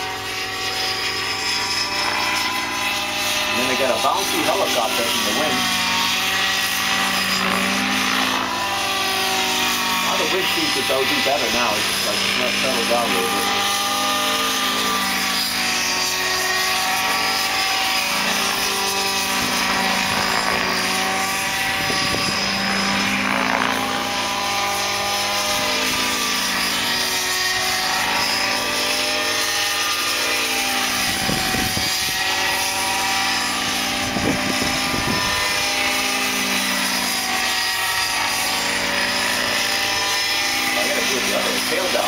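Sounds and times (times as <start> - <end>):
model helicopter engine and rotor: 0.0 - 42.0
wind gusting across microphone: 21.4 - 22.6, 31.1 - 32.3, 34.0 - 35.6.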